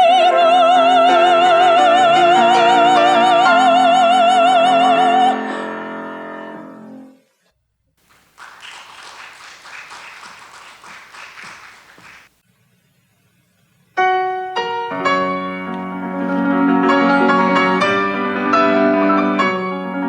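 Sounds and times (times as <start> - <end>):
piano: 0.0 - 7.2, 14.0 - 20.0
applause: 8.0 - 12.4.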